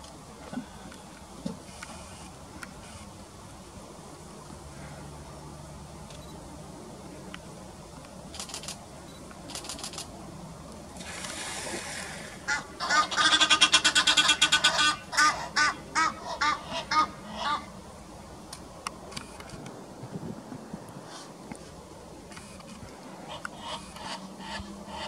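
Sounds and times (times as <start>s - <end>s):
bird calling: 12.4s - 17.7s.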